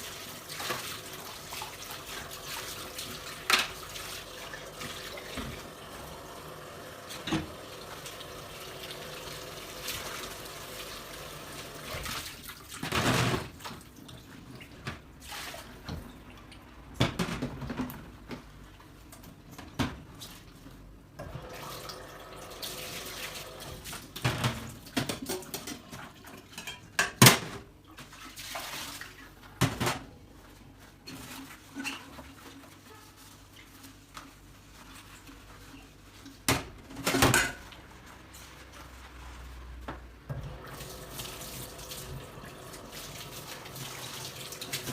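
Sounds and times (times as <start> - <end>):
tap water running into sink: 0.0 - 12.3, 21.2 - 25.6, 40.3 - 44.9.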